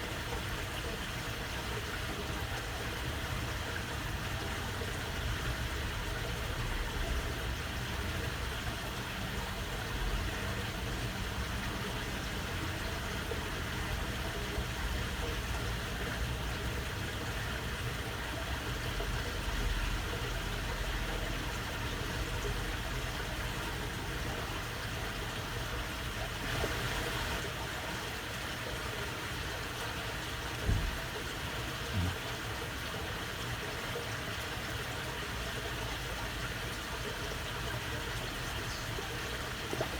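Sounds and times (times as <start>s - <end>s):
water flowing in a channel: 0.0s - 39.9s
brief thumps: 30.6s - 31.0s.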